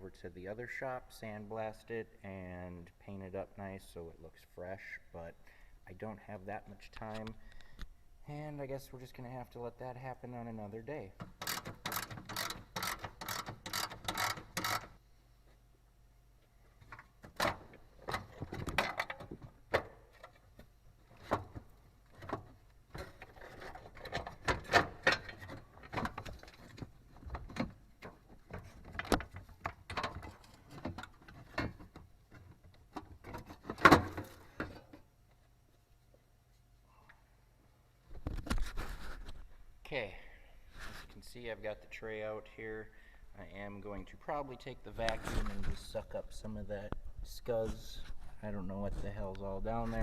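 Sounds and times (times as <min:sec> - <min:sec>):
hand ratchet clicking: 0:11.3 - 0:15.0.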